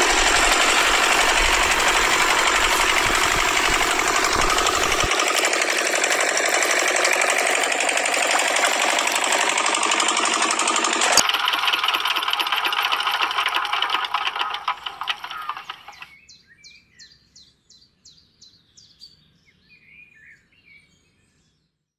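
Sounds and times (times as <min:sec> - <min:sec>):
small toy motor clattering: 0:00.0 - 0:16.1
bird chirping: 0:15.0 - 0:21.6.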